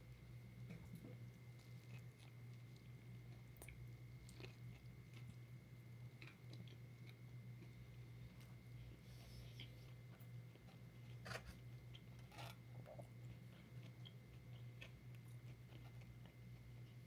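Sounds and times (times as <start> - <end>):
steady low hum: 0.0 - 17.0
person chewing: 1.6 - 5.5, 6.1 - 7.8, 9.2 - 17.0.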